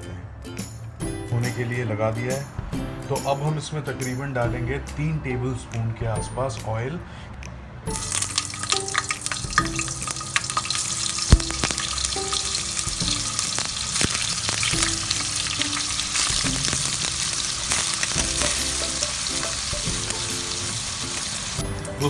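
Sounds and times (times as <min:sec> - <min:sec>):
cheese cubes sizzling in oil: 0:08.0 - 0:21.7.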